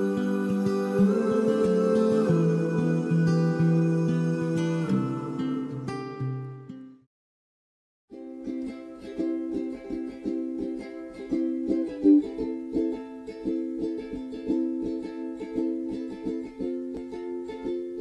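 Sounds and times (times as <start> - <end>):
strummed acoustic string chords: 0.0 - 7.0.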